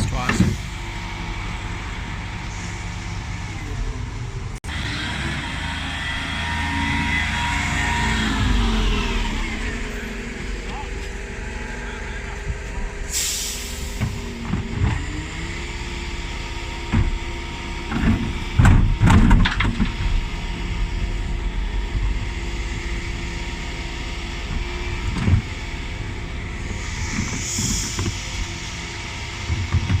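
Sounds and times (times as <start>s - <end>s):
lorry engine running: 0.0s - 30.0s
air hiss: 13.1s - 14.0s
bin lift clattering and banging: 16.9s - 20.3s.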